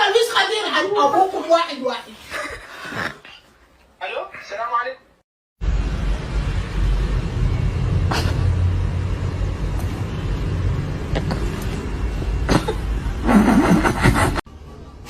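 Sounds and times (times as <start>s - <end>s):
low rumble: 5.6s - 13.3s.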